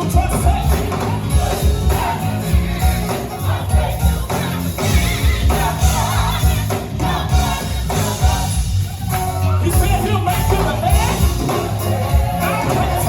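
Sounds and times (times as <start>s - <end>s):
gospel choir singing: 0.0s - 13.0s
live band playing: 0.0s - 13.0s.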